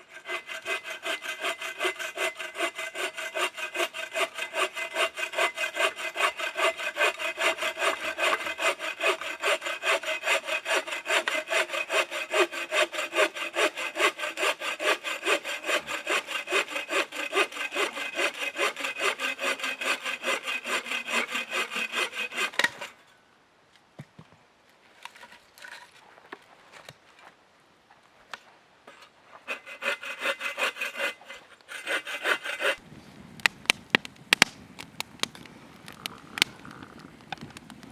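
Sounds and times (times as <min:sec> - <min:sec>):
hand saw cutting wood: 0:00.0 - 0:23.0, 0:29.4 - 0:32.8.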